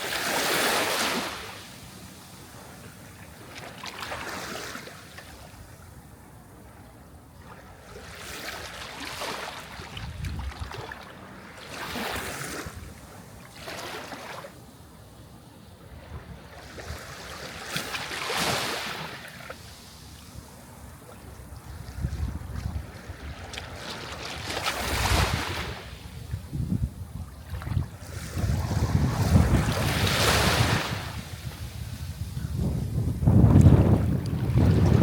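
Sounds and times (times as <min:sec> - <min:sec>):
sea waves washing in: 0:00.0 - 0:05.6, 0:15.9 - 0:26.5, 0:27.8 - 0:35.0.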